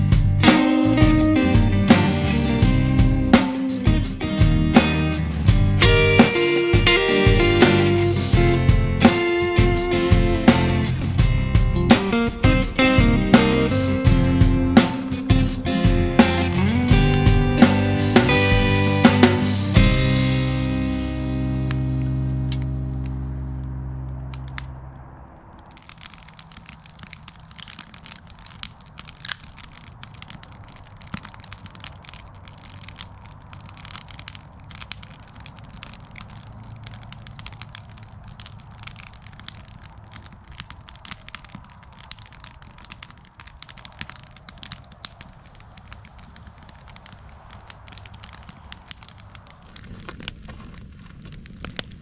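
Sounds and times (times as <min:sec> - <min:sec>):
guitar music: 0:00.0 - 0:24.9
campfire crackling and snapping: 0:00.0 - 0:52.0.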